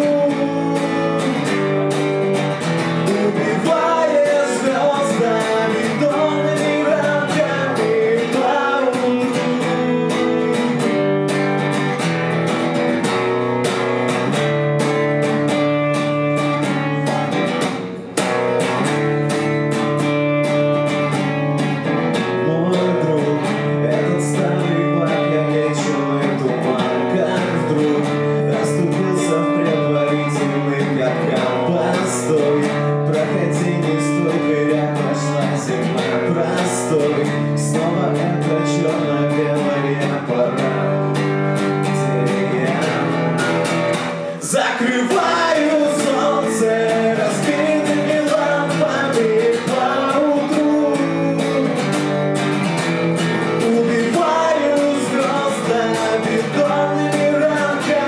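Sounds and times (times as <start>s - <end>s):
acoustic guitar strummed and picked: 0.0s - 58.0s.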